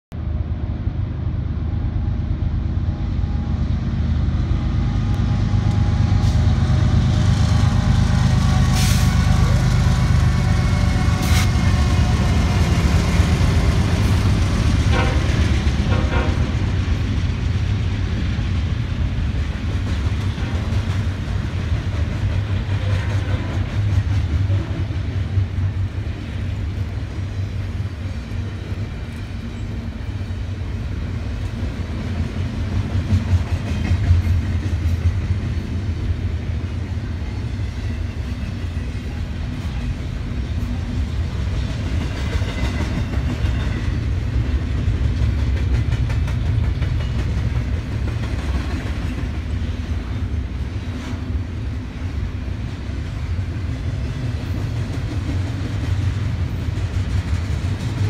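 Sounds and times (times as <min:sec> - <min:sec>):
rolling noise of freight cars: 0:00.1 - 0:58.0.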